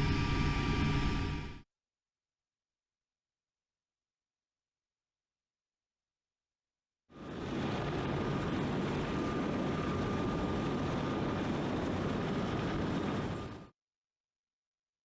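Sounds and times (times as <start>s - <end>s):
faint high whine: 0.0s - 1.6s, 7.2s - 13.7s.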